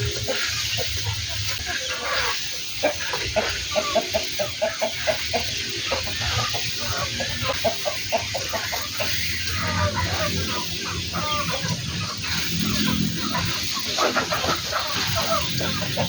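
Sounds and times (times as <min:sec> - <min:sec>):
chickens clucking: 0:00.0 - 0:16.0
sprayer hissing: 0:00.0 - 0:16.0.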